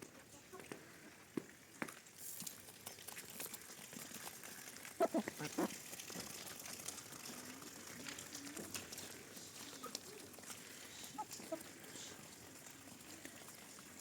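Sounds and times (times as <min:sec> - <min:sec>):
chickens clucking: 0:04.9 - 0:06.4, 0:08.4 - 0:12.4.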